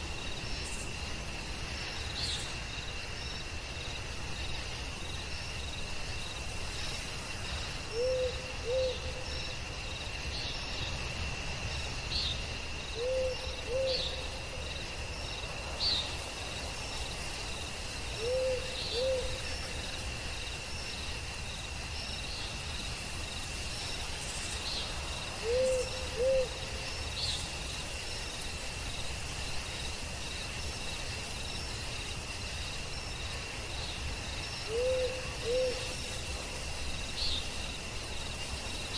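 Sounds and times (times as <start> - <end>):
crickets droning: 0.0 - 38.9
owl hooting: 7.9 - 9.2, 13.0 - 14.1, 18.2 - 19.4, 25.4 - 26.6, 34.7 - 35.9.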